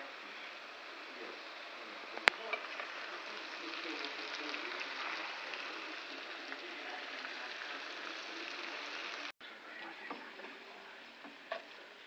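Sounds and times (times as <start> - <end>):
vegetables sizzling in a hot pan: 0.0 - 9.4.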